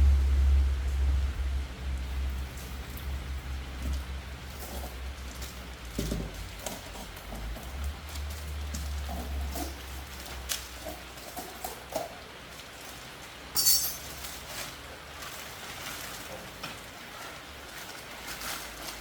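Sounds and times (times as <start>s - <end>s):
low rumble: 0.0s - 3.9s
metallic clinks and knocks: 13.5s - 14.2s.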